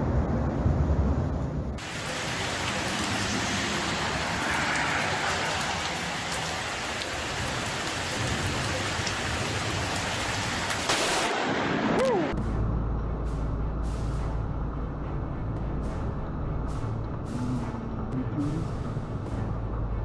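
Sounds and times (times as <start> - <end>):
sharp raindrop ticks: 1.8 - 11.4
heavy rain falling: 1.8 - 12.4.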